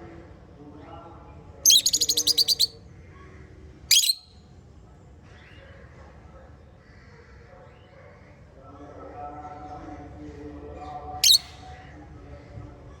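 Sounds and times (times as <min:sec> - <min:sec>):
parrots chirping: 0:01.7 - 0:02.7, 0:03.9 - 0:04.2, 0:11.2 - 0:11.6.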